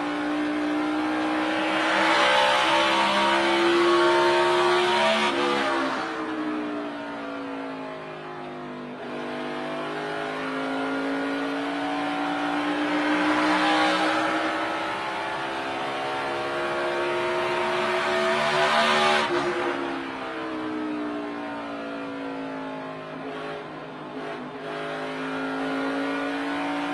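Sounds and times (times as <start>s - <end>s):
race car engine revving: 0.0s - 6.4s, 9.0s - 20.3s, 23.2s - 26.9s.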